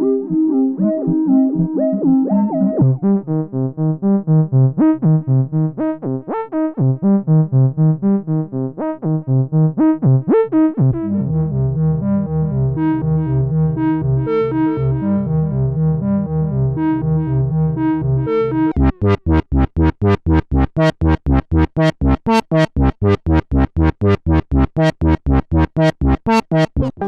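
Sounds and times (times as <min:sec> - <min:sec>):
synthesizer sequenced pattern: 0:18.7 - 0:27.0.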